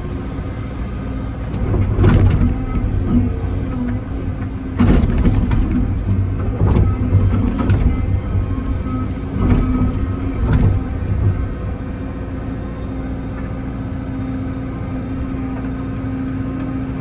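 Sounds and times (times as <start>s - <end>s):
scraping and clanking bursts: 0.0s - 12.1s
excavator diesel engine running: 0.0s - 17.0s.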